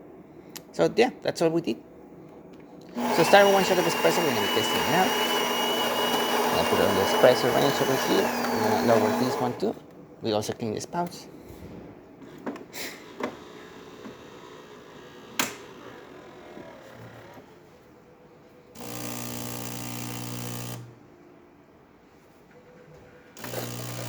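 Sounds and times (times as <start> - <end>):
espresso machine pump buzzing: 2.9 - 9.8, 18.8 - 20.9, 23.4 - 24.0.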